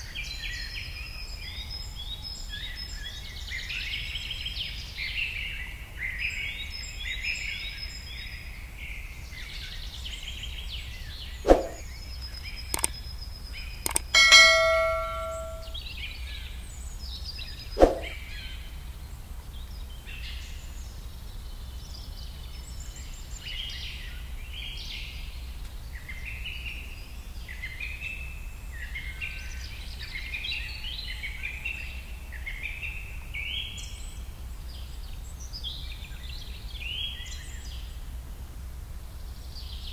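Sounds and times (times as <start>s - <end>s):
small birds chirping: 9.3s - 15.8s
sharp clicks: 12.7s - 13.0s, 13.8s - 15.7s
metallic ding: 13.9s - 15.8s.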